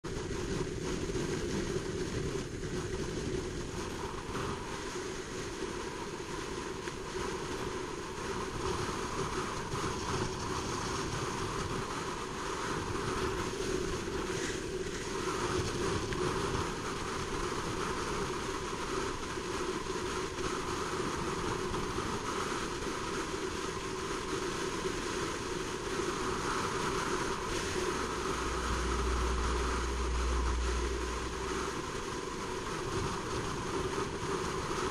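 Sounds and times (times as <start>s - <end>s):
deep low rumble: 27.5s - 33.9s.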